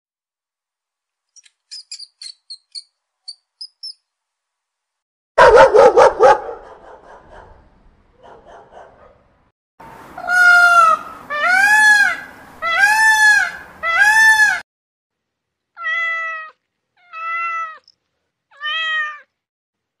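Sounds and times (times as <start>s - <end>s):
peacock calling: 10.1s - 14.6s
cat meowing: 15.8s - 17.9s, 18.5s - 19.3s.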